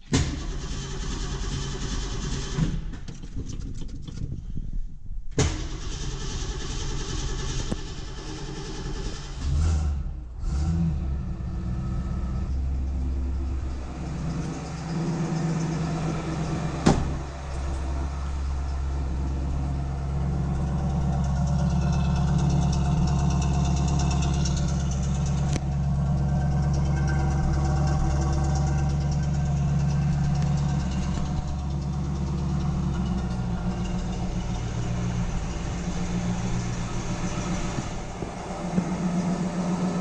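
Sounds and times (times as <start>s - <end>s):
car engine idling: 5.3s - 40.0s
sharp knock: 16.8s - 17.3s.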